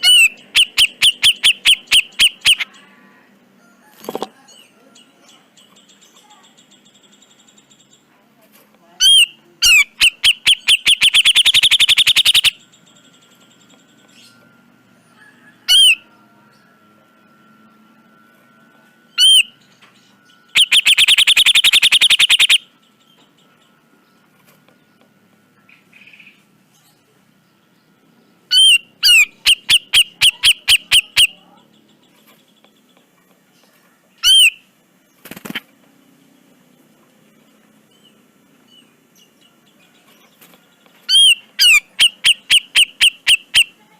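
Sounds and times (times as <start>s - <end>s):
bulbul harsh calls and rattles: 0.0s - 2.6s, 9.0s - 12.6s, 20.5s - 22.7s.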